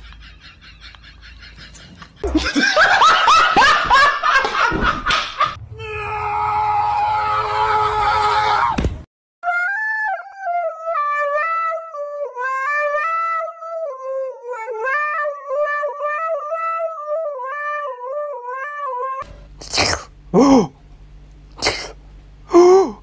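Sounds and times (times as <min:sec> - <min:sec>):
dog howling into microphone: 0:05.7 - 0:08.8, 0:09.4 - 0:19.2.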